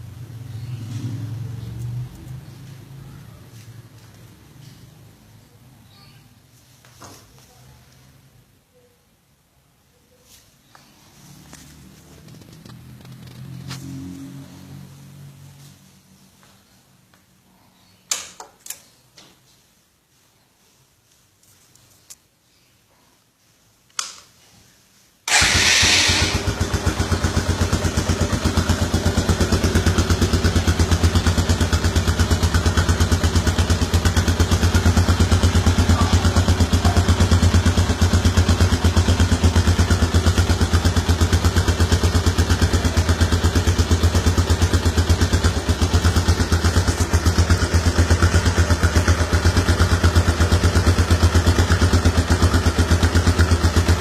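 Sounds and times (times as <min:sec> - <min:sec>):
motorcycle engine starting and idling: 0:00.0 - 0:05.4, 0:11.1 - 0:15.3, 0:25.3 - 0:54.0.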